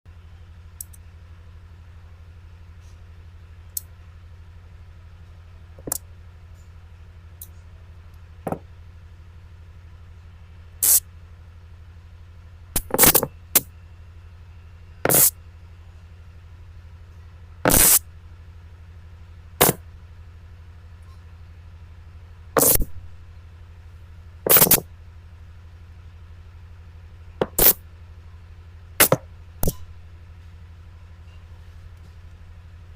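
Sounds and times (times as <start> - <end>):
steady low hum: 0.1 - 32.9
magnets snapping together: 27.5 - 27.8.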